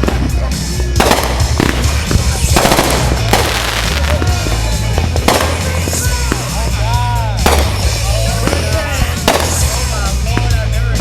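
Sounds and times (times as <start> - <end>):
fireworks bursting: 0.0 - 11.0
fireworks crackling: 0.0 - 11.0
music with low bass: 0.0 - 11.0.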